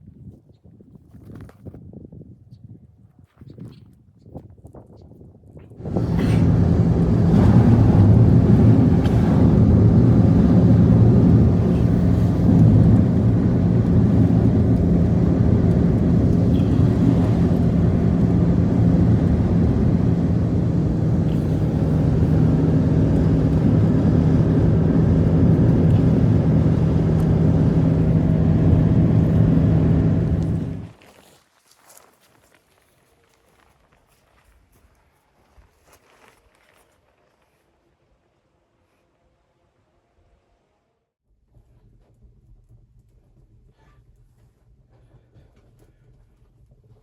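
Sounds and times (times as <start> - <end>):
vehicle engine running steadily: 5.8 - 31.0.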